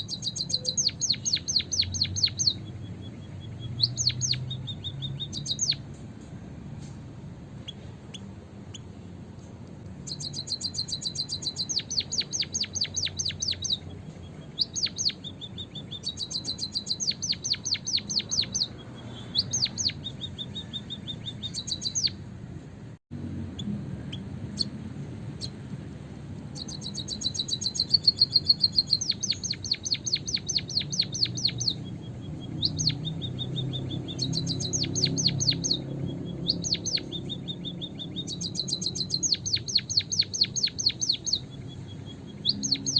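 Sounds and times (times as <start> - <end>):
birds chirping rapidly: 0.0 - 42.9.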